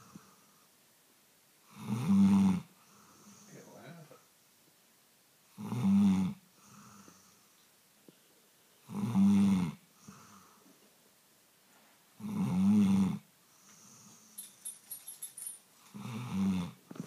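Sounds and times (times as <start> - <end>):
soft breaths: 0.0 - 0.8, 2.7 - 4.3, 6.5 - 8.8, 9.9 - 12.2, 13.4 - 16.0
dog snoring: 1.7 - 3.6, 5.5 - 7.4, 8.8 - 10.6, 12.2 - 14.3, 15.9 - 16.8.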